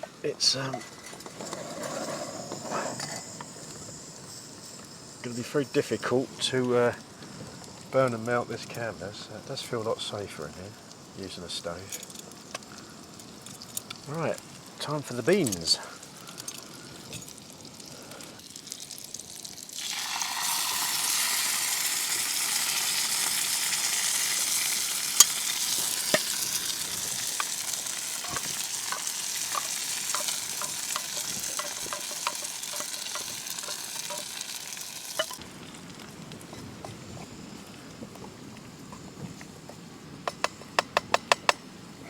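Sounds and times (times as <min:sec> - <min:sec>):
food sizzling in a frying pan: 0:06.5 - 0:37.7
utensil tapping a pan: 0:28.2 - 0:34.6, 0:35.2 - 0:35.4.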